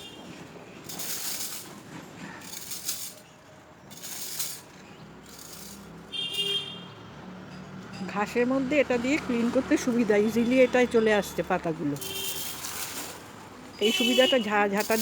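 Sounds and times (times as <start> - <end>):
rake dragging dry leaves: 0.0 - 3.3, 3.9 - 6.0, 11.9 - 15.0.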